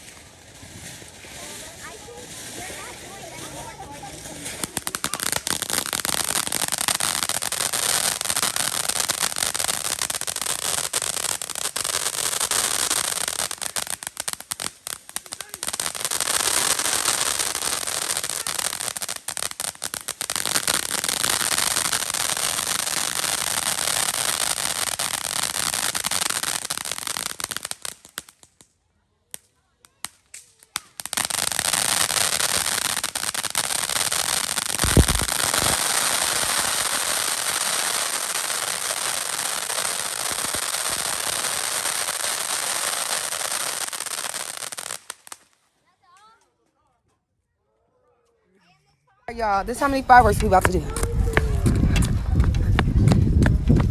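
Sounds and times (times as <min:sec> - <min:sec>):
fireworks crackling: 0:00.0 - 0:46.4, 0:49.3 - 0:53.9.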